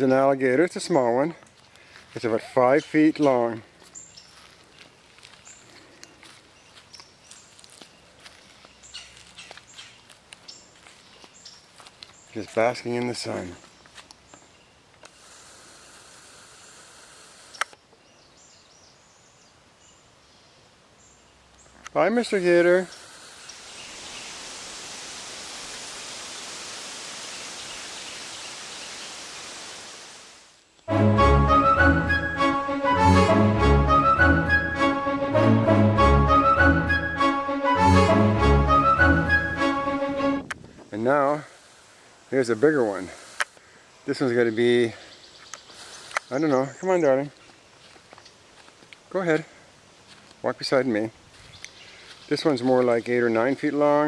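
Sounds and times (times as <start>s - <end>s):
outdoor background hiss: 0.0s - 54.0s.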